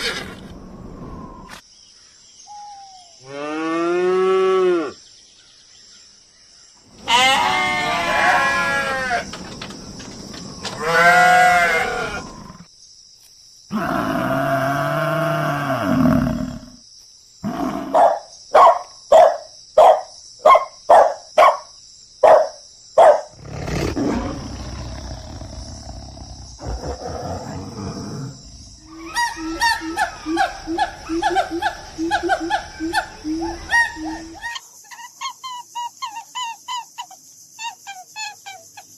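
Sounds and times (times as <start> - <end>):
animal calls: 23.0 - 38.9
loud animal grunts: 23.3 - 29.2.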